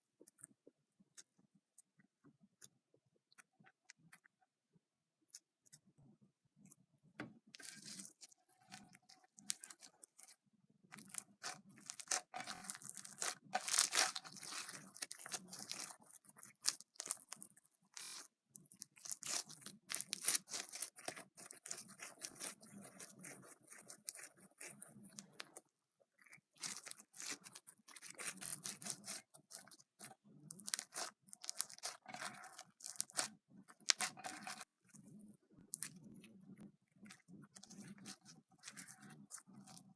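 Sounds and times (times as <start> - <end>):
slime crackling and popping: 10.9 - 25.6, 26.2 - 34.7.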